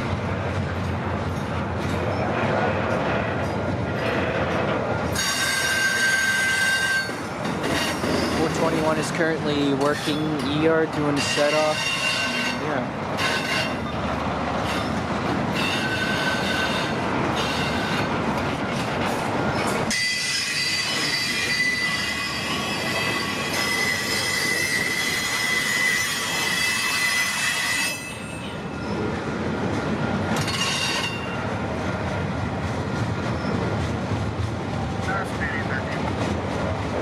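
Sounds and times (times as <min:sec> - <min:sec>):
train cars rumbling and clattering: 0:00.0 - 0:37.0
steel wheels squealing on rail: 0:01.3 - 0:02.5, 0:05.1 - 0:14.0, 0:14.6 - 0:29.2, 0:30.4 - 0:31.5, 0:33.2 - 0:33.8.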